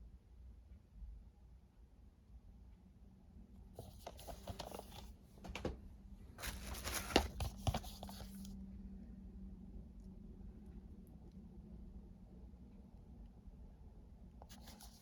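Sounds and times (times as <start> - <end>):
plastic packaging crinkling: 3.8 - 5.0, 6.4 - 8.5.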